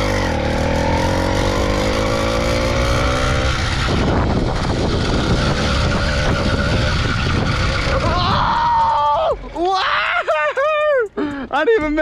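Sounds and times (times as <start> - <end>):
small two-stroke engine revving: 0.0 - 9.6.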